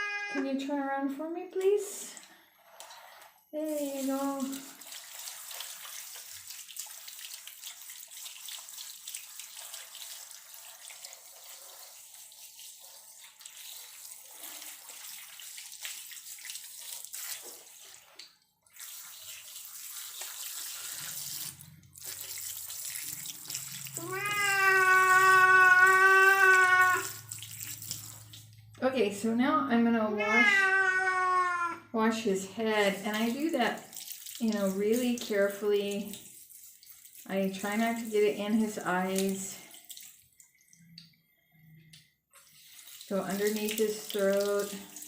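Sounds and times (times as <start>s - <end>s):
running water hissing: 8.9s - 28.6s
cat yowling: 24.0s - 27.2s, 30.2s - 31.8s.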